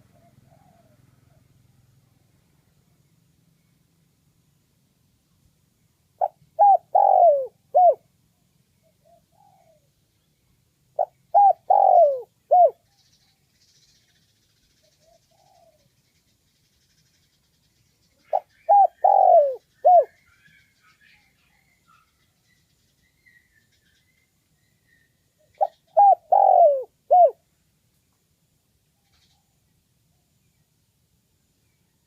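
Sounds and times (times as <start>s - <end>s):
dove cooing: 0.0s - 1.5s, 6.2s - 8.1s, 8.9s - 9.9s, 11.0s - 12.8s, 15.0s - 15.9s, 18.2s - 20.2s, 25.4s - 27.4s.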